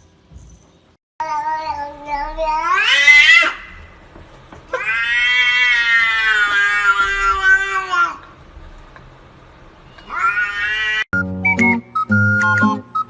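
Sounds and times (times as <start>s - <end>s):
cat yowling: 1.4s - 3.8s, 4.7s - 8.2s, 10.0s - 11.1s.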